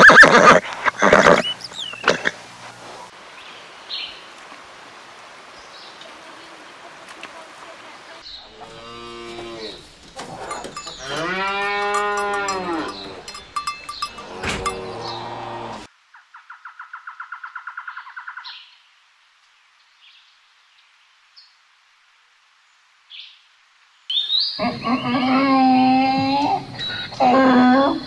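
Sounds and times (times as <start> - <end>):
faint background noise: 0.0 - 28.0
cows mooing: 8.5 - 15.9.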